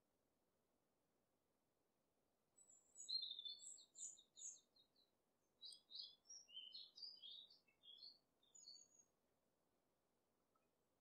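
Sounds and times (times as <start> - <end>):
faint birds chirping: 2.6 - 9.3.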